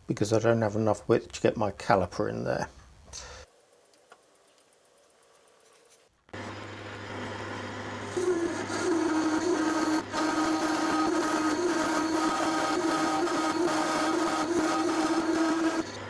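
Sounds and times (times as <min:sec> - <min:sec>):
metal lathe running: 0:06.4 - 0:16.0
tool chatter drone: 0:06.4 - 0:16.0.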